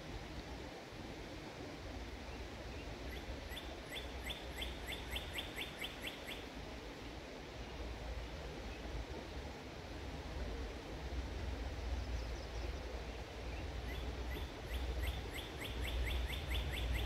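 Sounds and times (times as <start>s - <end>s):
songbird calling: 3.1s - 6.4s, 13.6s - 17.0s.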